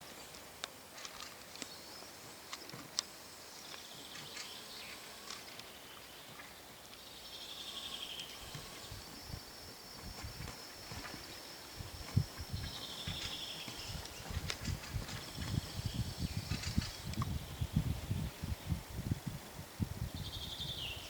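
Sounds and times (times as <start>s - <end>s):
small birds chirping: 1.5s - 18.8s, 20.0s - 21.0s
thin steady high tone: 7.0s - 17.8s.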